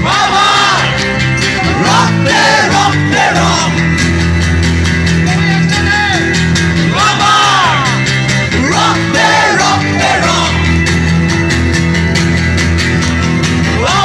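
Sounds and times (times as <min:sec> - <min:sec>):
people singing: 0:00.0 - 0:03.9, 0:06.8 - 0:10.8, 0:13.8 - 0:14.0
acoustic chords: 0:00.0 - 0:14.0.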